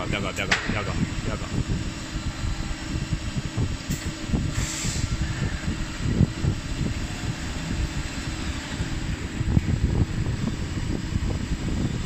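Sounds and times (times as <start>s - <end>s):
rumbling machine noise: 0.0s - 12.0s.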